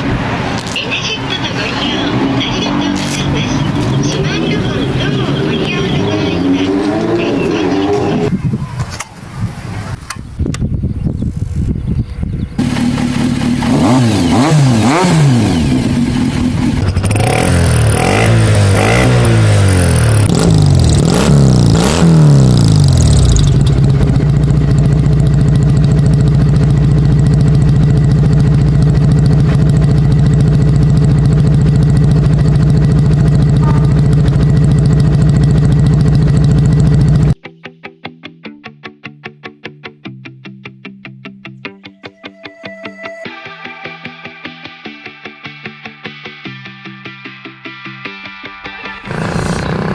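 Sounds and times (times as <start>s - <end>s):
motorcycle engine accelerating: 0.0s - 8.4s, 10.8s - 37.4s, 48.9s - 49.9s.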